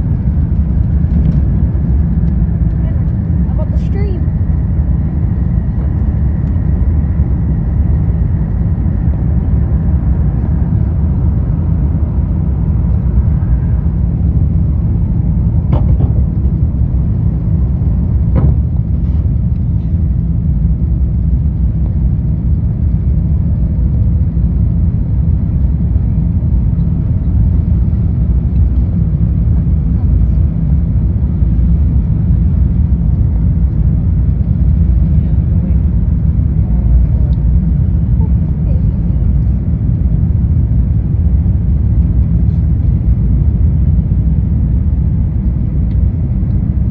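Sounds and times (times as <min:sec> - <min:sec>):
jet engines rumbling: 0:00.0 - 0:46.9
sharp knocks: 0:15.7 - 0:16.2, 0:18.3 - 0:18.7.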